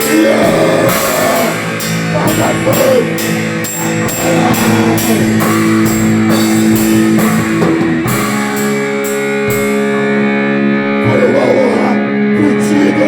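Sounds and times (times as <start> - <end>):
heavy rock music: 0.0 - 13.0
ringing guitar chord: 0.0 - 13.0
cymbals struck: 0.9 - 9.9.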